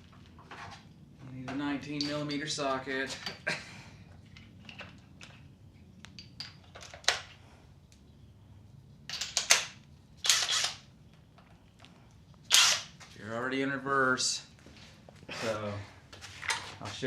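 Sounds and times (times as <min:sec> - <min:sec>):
impact wrench bursts: 0:10.2 - 0:10.8, 0:12.5 - 0:12.9.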